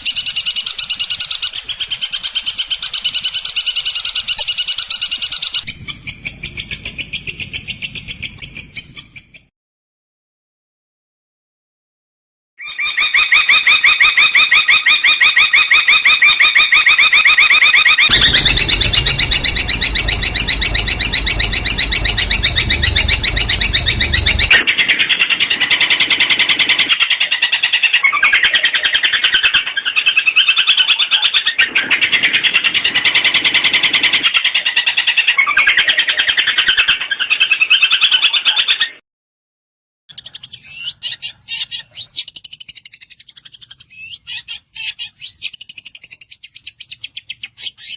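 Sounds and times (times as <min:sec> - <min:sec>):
bird singing rattling trills: 0:00.0 - 0:09.5, 0:18.0 - 0:24.6.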